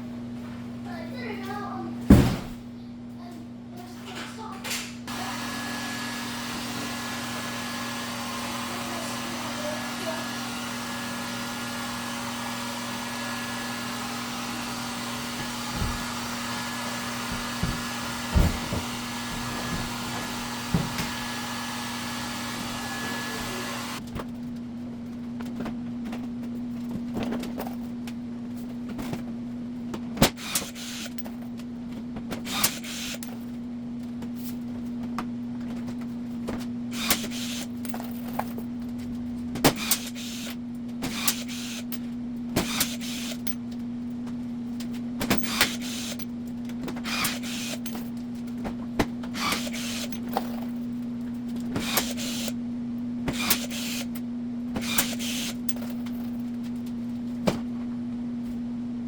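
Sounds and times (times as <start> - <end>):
electric motor with air rush: 5.1 - 24.0, 45.5 - 46.2, 47.1 - 47.9, 49.4 - 50.2, 51.8 - 52.6.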